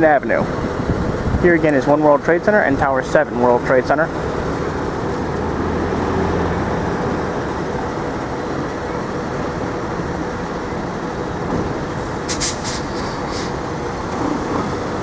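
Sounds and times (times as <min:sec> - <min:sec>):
passing vehicles hum: 0:00.0 - 0:15.0
short sharp hisses: 0:12.2 - 0:13.6.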